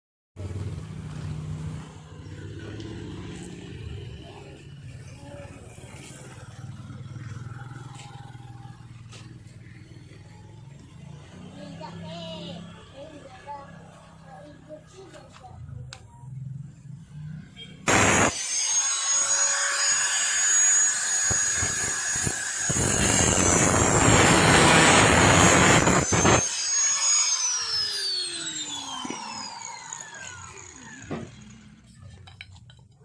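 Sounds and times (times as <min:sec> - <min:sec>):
power tool motor whine: 0:17.9 - 0:32.2.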